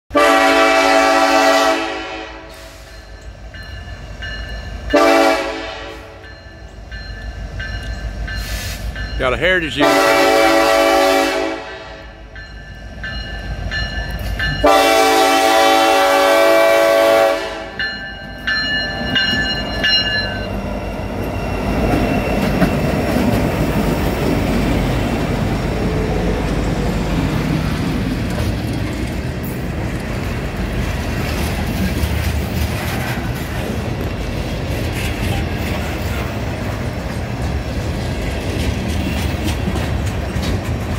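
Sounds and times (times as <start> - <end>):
train horn blast: 0.1 - 2.8, 4.9 - 6.2, 9.7 - 12.2, 14.6 - 17.8
wheels clacking on rails: 2.5 - 40.9
locomotives rumbling: 18.8 - 40.9.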